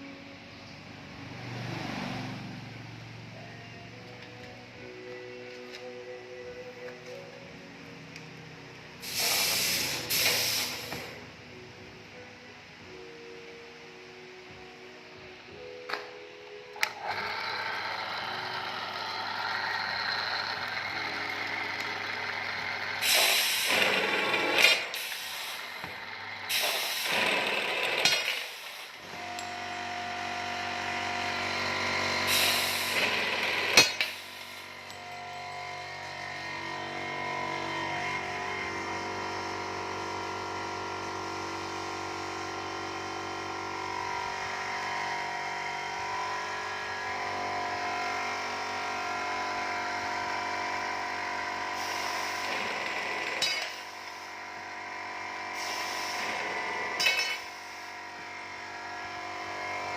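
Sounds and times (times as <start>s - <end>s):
tube cutting machine motor hum: 9.0s - 11.2s, 16.7s - 59.9s.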